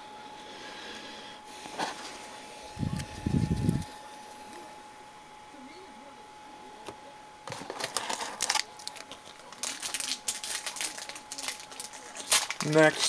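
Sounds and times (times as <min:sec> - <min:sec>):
faint steady whine: 0:00.0 - 0:13.0
cards and wrappers rustling: 0:07.4 - 0:13.0.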